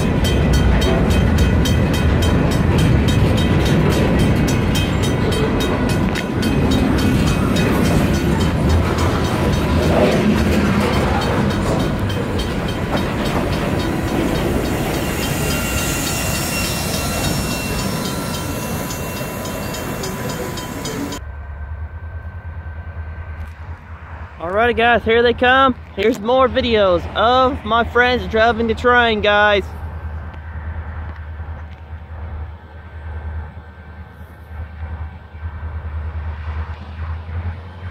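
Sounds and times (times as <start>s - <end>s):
train wheels clicking over rail joints: 0.0s - 21.2s
low hum: 0.0s - 24.4s
heavy train rumble: 0.0s - 37.9s.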